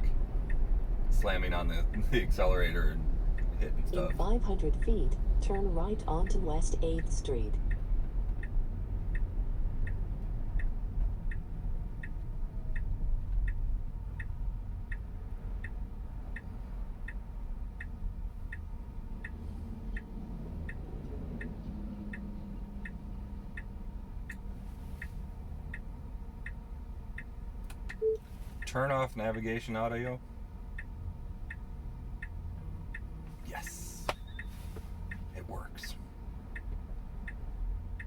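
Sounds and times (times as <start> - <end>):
low road rumble: 0.0 - 38.0
turn signal ticking: 0.0 - 38.0.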